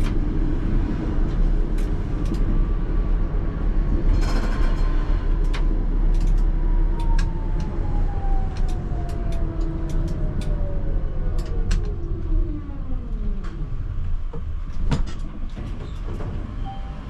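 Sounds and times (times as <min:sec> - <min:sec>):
tram motor whine: 0:00.0 - 0:15.0
wheels clicking over rail joints: 0:04.0 - 0:12.2.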